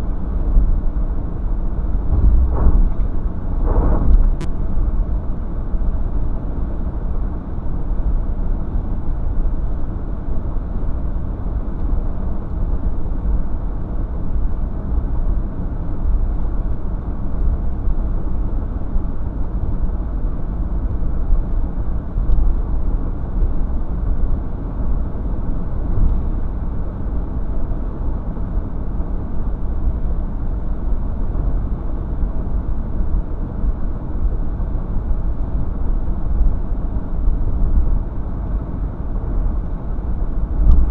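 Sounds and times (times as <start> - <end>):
car road and engine rumble: 1.7 - 4.5.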